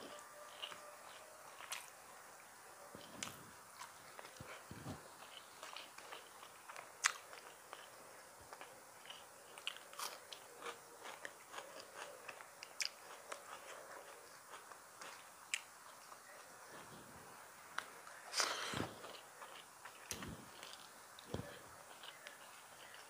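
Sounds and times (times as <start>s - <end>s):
person chewing: 0.0s - 2.0s, 3.0s - 17.0s, 17.8s - 23.0s
fingers mixing rice on a plate: 19.0s - 23.0s.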